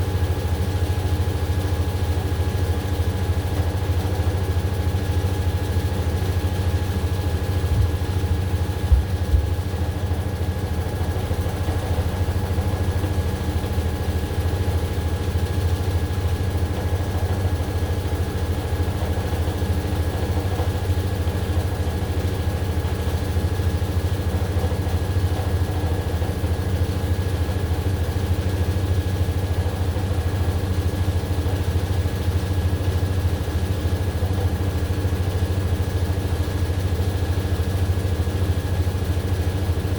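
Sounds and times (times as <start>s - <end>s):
washing machine drum spinning: 3.1s - 30.8s.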